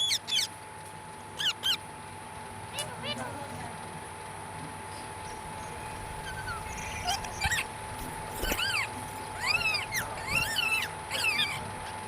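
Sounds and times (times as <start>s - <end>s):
parakeet calls: 0.0s - 0.6s, 1.4s - 1.9s, 2.6s - 3.5s, 5.2s - 12.0s.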